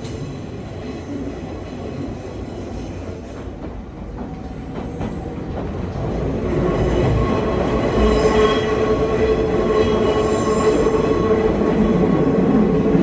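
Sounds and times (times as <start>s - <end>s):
train wheels rumbling on rail: 0.0s - 13.0s
high wheel squeal: 6.8s - 12.0s.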